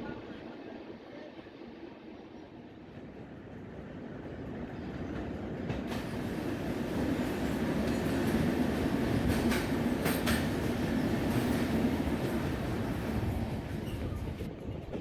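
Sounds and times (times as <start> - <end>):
train rumble: 2.8 - 15.0
train wheels clicking over rail joints: 5.7 - 14.5.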